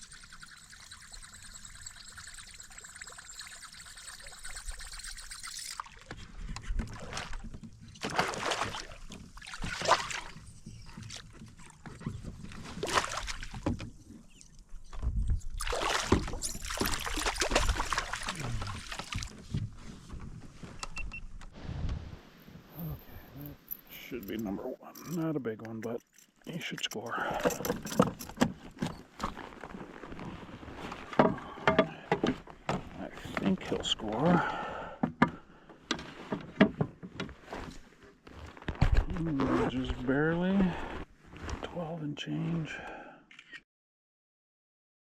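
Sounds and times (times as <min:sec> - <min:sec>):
steady water hiss: 0:00.0 - 0:05.8
water splashing around kayak: 0:05.7 - 0:14.3, 0:15.6 - 0:19.6.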